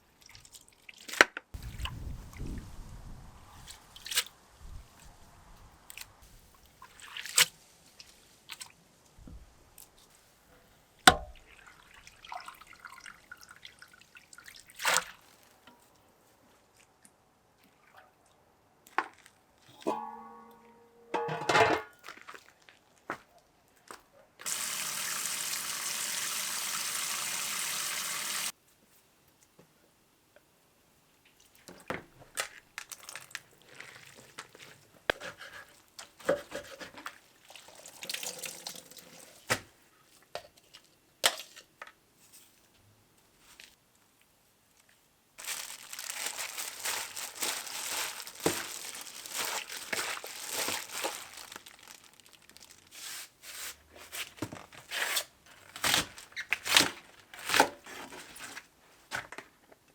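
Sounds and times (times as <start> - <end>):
crinkling and rustles: 18.8 - 20.1, 21.5 - 24.1, 31.2 - 37.7, 39.4 - 59.9
running water rushing: 24.4 - 28.5.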